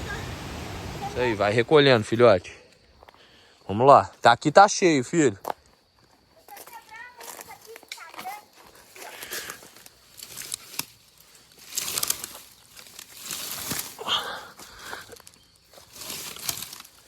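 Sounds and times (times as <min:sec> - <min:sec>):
dry branches and leaves rustling: 0:00.0 - 0:02.2, 0:06.4 - 0:17.0
branches snapping: 0:09.3 - 0:14.0, 0:15.0 - 0:17.0.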